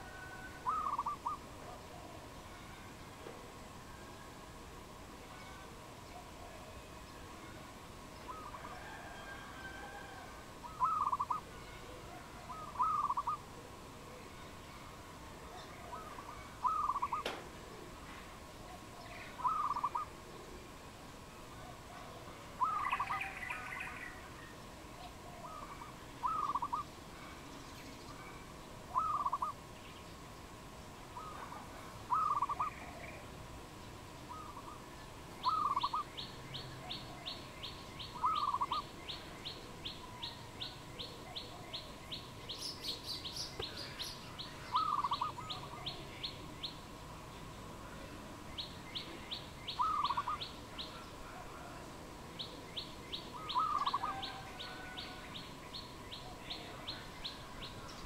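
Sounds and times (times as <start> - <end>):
loud bird call: 0.0 - 1.4, 8.2 - 13.5, 15.6 - 17.4, 19.3 - 20.2, 22.6 - 24.2, 25.3 - 26.9, 28.9 - 29.6, 31.2 - 33.3, 35.4 - 42.0, 42.6 - 46.4, 49.6 - 51.1, 53.2 - 55.5
high ticking bird chirps: 35.4 - 36.7, 42.1 - 45.6.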